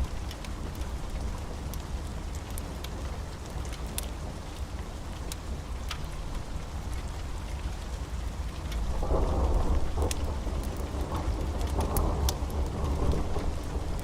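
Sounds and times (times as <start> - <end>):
steady rain: 0.0 - 14.0
wood fire crackling: 0.0 - 14.0
low thunder rumble: 8.9 - 14.0.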